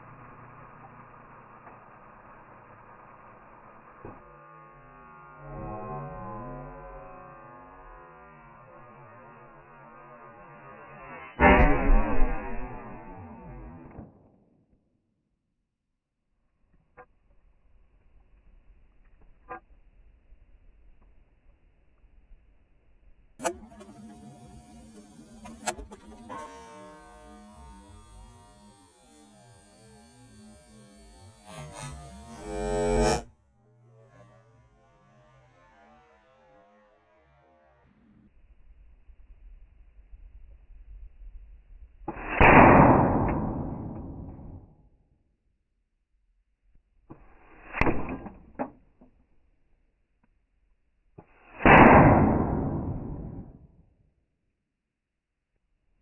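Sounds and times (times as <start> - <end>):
electric motor hum: 0.0 - 11.3, 23.4 - 34.4
gunshots: 32.3 - 33.2, 42.1 - 44.2, 51.5 - 53.4.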